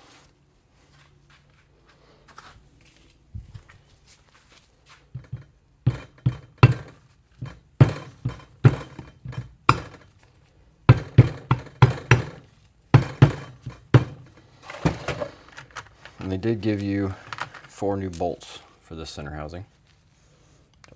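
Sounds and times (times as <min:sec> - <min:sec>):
metal parts knocking and clinking: 0:05.2 - 0:10.1, 0:10.9 - 0:16.4.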